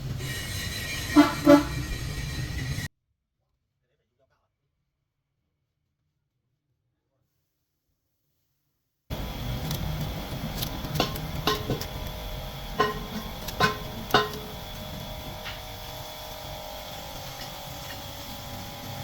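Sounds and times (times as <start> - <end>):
steady background hum: 9.1 - 19.0.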